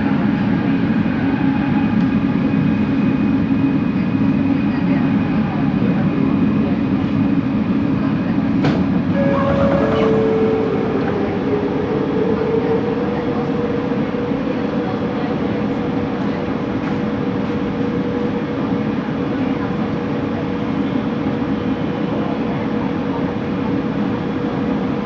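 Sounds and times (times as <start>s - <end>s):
train running gear rumble: 0.0s - 25.0s
rising motor tone: 9.2s - 14.0s.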